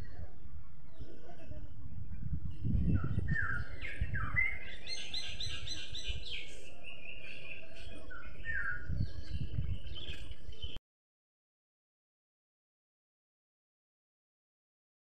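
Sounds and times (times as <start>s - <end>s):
bird chirping: 0.0s - 10.8s.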